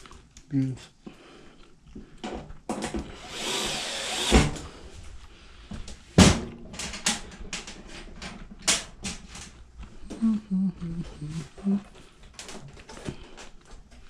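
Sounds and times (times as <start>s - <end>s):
tools and parts clicking and tapping: 6.7s - 9.6s.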